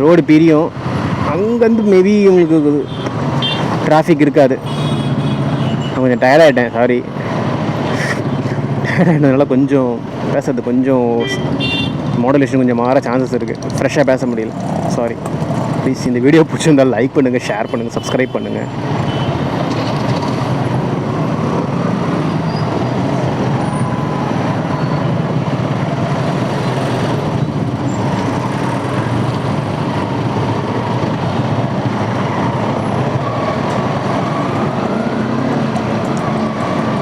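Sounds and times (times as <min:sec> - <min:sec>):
road noise: 0:00.0 - 0:37.0
wind rush: 0:18.8 - 0:37.0.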